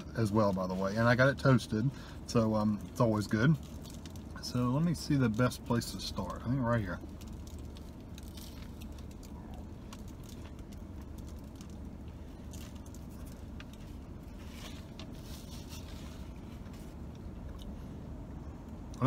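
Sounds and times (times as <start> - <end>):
low hum in car cabin: 0.0 - 19.0
person chewing sandwich: 7.0 - 18.1.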